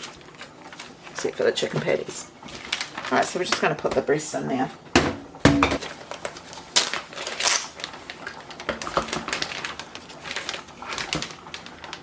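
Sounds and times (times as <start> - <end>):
plastic bags crinkling: 1.5 - 3.8, 5.8 - 12.0.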